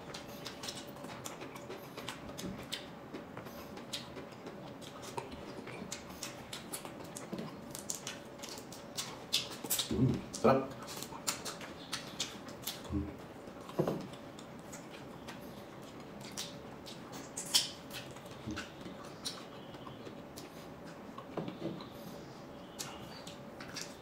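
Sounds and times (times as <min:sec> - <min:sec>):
chewing: 0:00.0 - 0:24.0.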